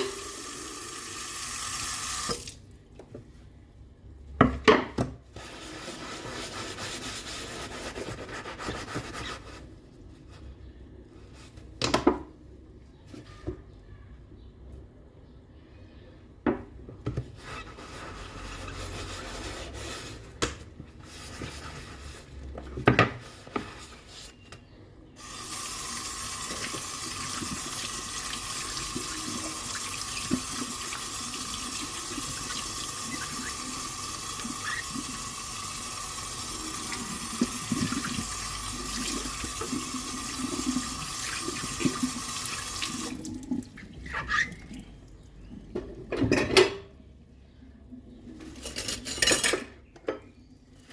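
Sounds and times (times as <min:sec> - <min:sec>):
water running into sink: 0:00.0 - 0:02.6, 0:25.2 - 0:44.7.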